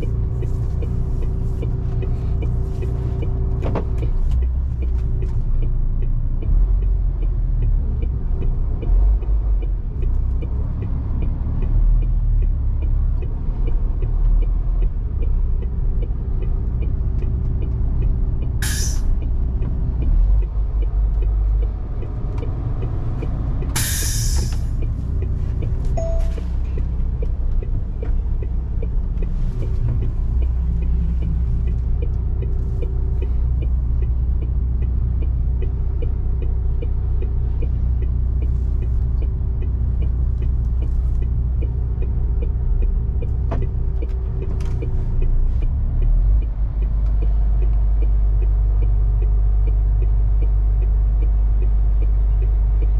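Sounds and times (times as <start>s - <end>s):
diesel truck engine rumbling: 0.0s - 52.9s
air hiss: 18.6s - 19.1s, 23.8s - 24.7s.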